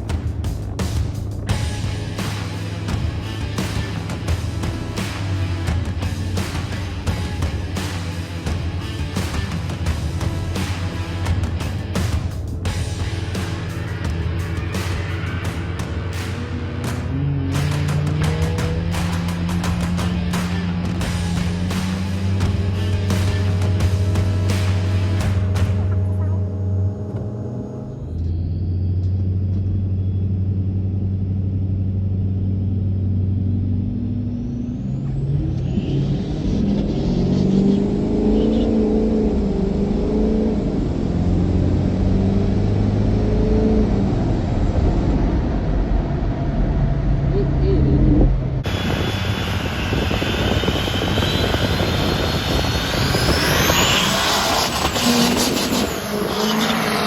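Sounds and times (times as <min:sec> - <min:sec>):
diesel engine running: 0:00.0 - 0:57.0
turbo whine rising in pitch: 0:01.4 - 0:57.0
faint high whine: 0:48.1 - 0:57.0.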